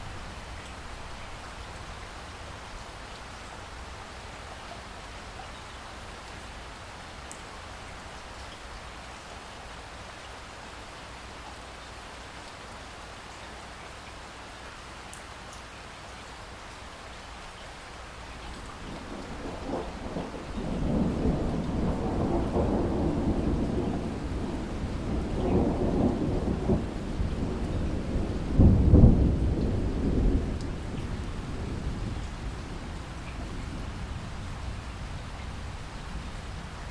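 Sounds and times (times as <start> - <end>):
steady rain falling: 0.0 - 36.9
thunder rumbling: 18.8 - 36.9.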